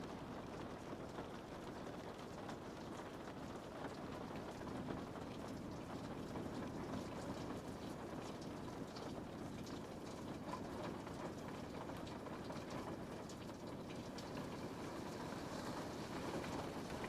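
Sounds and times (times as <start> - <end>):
rain tapping on a window: 0.0 - 17.0.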